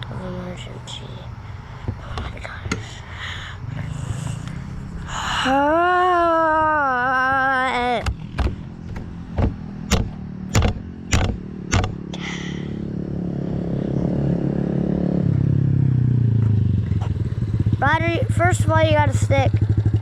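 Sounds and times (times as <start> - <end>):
small four-stroke engine running: 0.0 - 6.3, 7.0 - 20.0
sharp knocks: 8.0 - 12.2.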